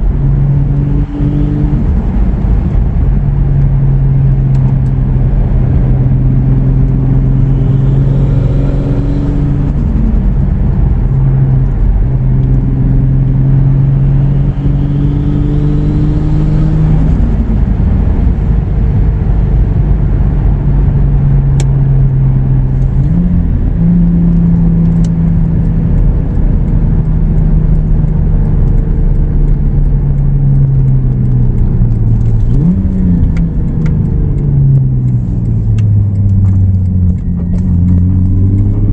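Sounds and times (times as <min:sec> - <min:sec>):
car engine accelerating: 0:00.0 - 0:38.9.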